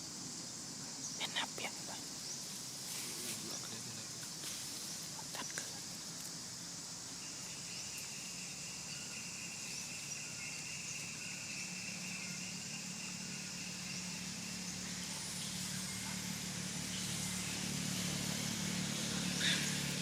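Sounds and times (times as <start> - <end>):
shrill insect buzzing: 4.1 - 20.0
vehicle engine hum: 11.4 - 20.0.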